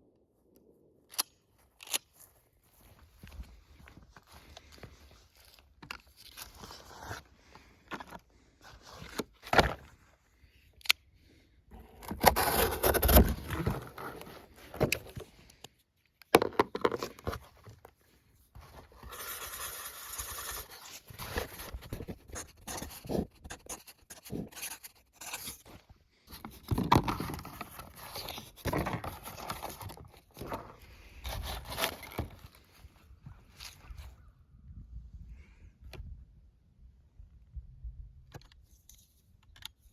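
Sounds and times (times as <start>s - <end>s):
scraping and rustling handling noises: 1.1s - 10.3s, 11.7s - 34.1s.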